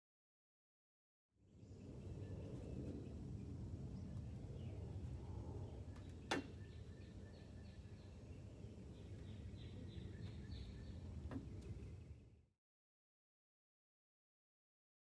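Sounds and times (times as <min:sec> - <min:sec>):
steady low rumble: 0:01.6 - 0:12.4.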